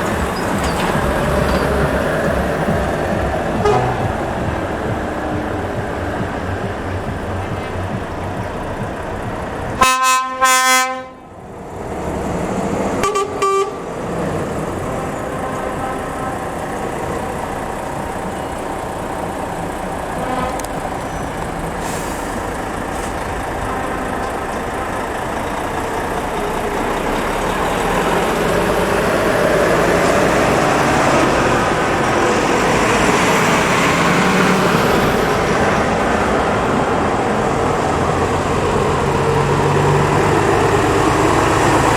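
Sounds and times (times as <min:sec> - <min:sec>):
truck horn blasting: 0:00.0 - 0:11.4, 0:13.0 - 0:14.0, 0:14.7 - 0:17.1, 0:20.2 - 0:21.0, 0:23.5 - 0:25.3
passing trucks engine and road noise: 0:00.0 - 0:41.9.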